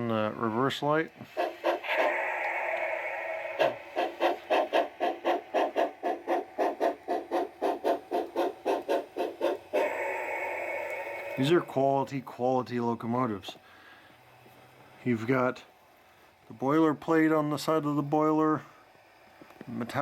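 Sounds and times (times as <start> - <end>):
steam locomotive chuffing: 0.0 - 12.1
steam hiss: 1.1 - 12.1.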